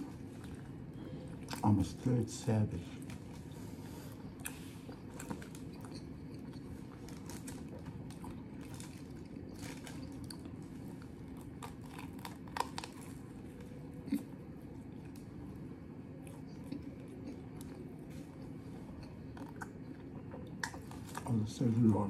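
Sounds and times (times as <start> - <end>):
chewing sandwich crunches: 0.0 - 2.1, 2.8 - 22.0
low room hum: 0.0 - 22.0.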